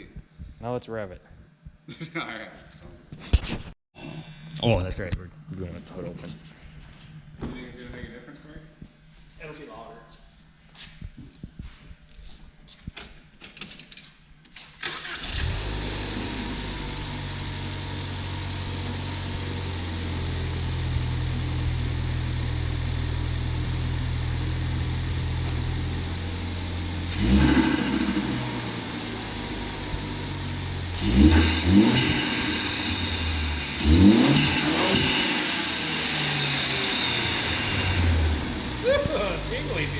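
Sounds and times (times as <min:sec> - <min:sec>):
car engine idling: 0:14.9 - 0:39.9
car engine revving blips: 0:23.6 - 0:39.9.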